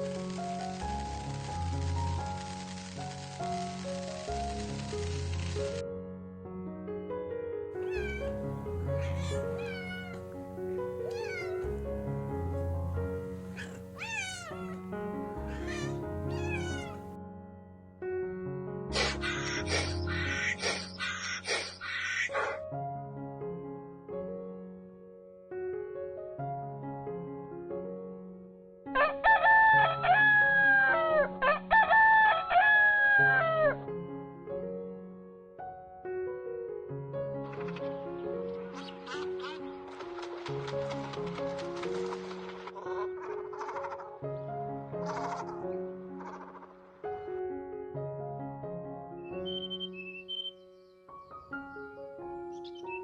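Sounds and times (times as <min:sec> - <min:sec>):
background music: 0:00.0 - 0:25.1, 0:26.1 - 0:35.9, 0:36.9 - 0:53.0
kitten mewing: 0:07.8 - 0:10.3, 0:11.0 - 0:11.8, 0:13.5 - 0:17.1, 0:19.0 - 0:20.0
animal calling: 0:07.8 - 0:11.8, 0:13.4 - 0:17.1, 0:18.9 - 0:22.6, 0:38.8 - 0:39.8, 0:42.8 - 0:44.2, 0:45.0 - 0:46.8, 0:49.3 - 0:50.6.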